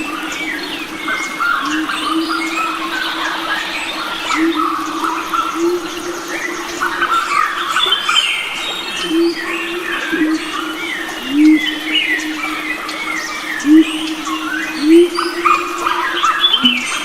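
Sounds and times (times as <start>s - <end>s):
birds chirping and trilling: 0.0s - 17.0s
low pulsing drone: 0.0s - 17.0s.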